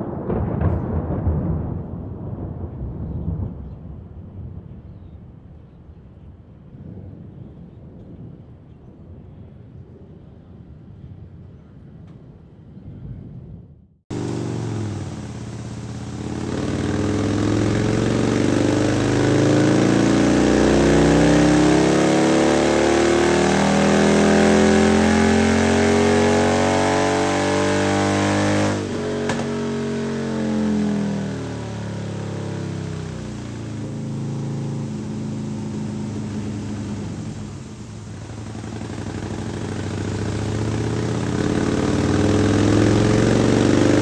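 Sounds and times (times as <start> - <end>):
motorcycle engine revving: 14.1 - 44.0.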